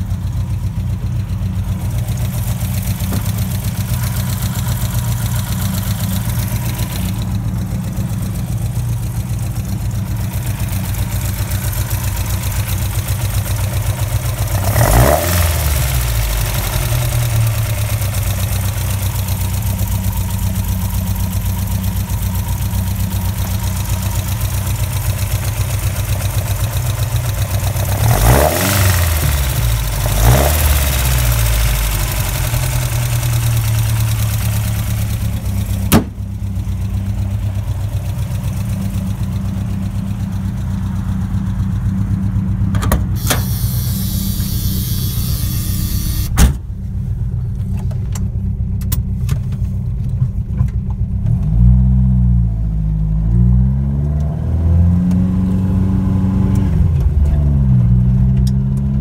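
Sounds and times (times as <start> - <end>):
car engine idling and revving: 0.0 - 59.0
car bonnet slamming shut: 35.9 - 36.3, 42.8 - 43.6, 46.3 - 46.7.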